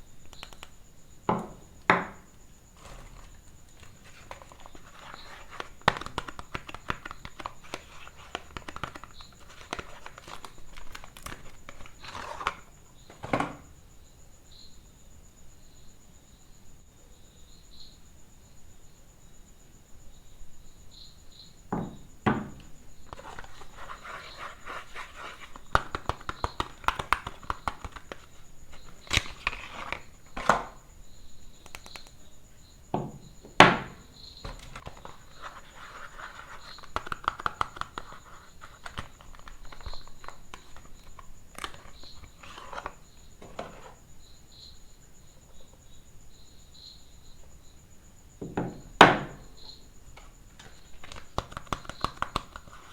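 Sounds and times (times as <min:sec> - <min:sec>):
sharp knocks: 0:01.3 - 0:02.2, 0:21.7 - 0:22.7.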